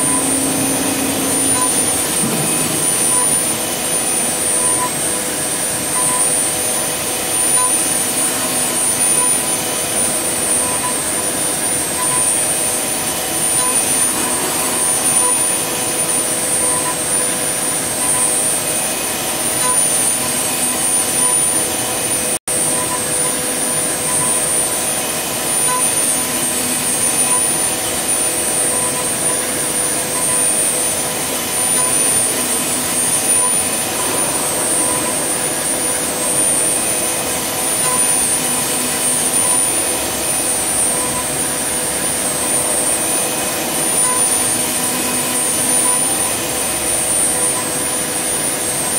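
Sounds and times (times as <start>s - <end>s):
wood lathe machine whirring: 0.0s - 22.3s.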